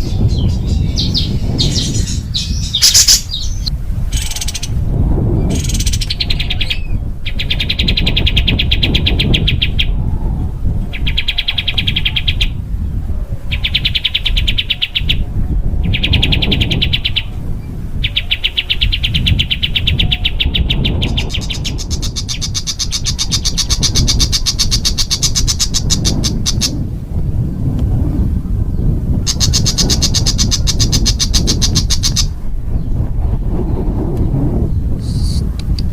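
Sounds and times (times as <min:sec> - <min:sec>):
songbird harsh trills: 0:00.0 - 0:04.8, 0:18.1 - 0:26.8
low rumble: 0:00.0 - 0:07.3.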